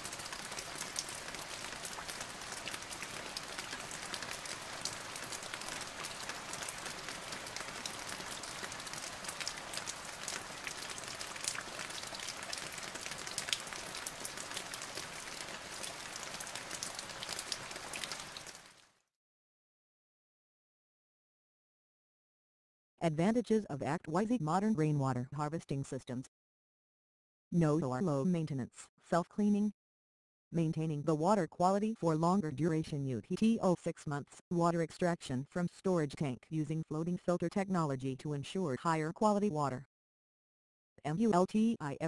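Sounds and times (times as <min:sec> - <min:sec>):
rain falling steadily: 0:00.0 - 0:18.9.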